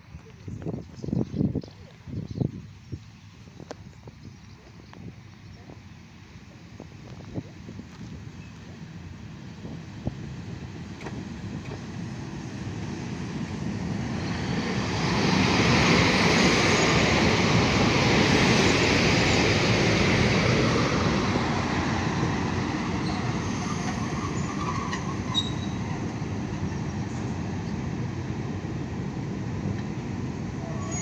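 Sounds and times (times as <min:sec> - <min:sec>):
electric train passing: 0:08.2 - 0:31.0
wheel or brake squeals: 0:23.0 - 0:25.9, 0:30.7 - 0:31.0.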